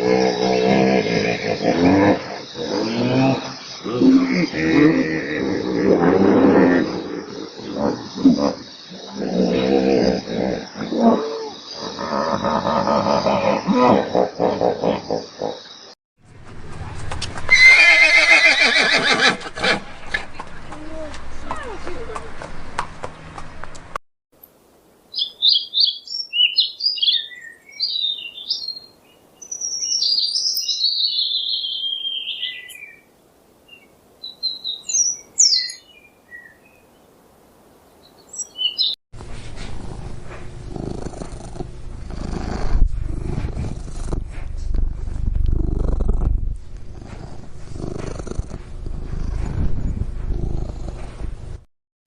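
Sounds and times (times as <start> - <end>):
small bird chirping and trilling: 25.2 - 33.0, 33.7 - 36.6, 38.0 - 39.0
steady low rumbling: 39.2 - 51.7.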